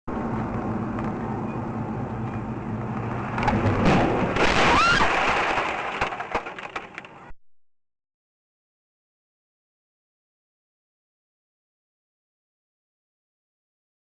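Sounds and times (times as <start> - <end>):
road and engine drone: 0.1 - 4.9
loud crash: 3.0 - 7.0.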